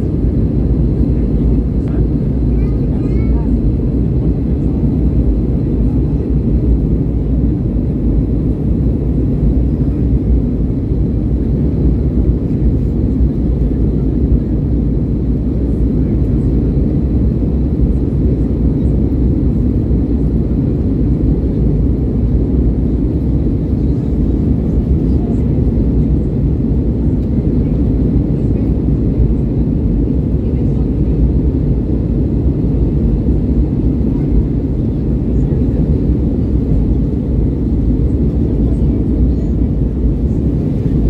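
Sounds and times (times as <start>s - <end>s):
aircraft engine rumble in cabin: 0.0s - 41.0s.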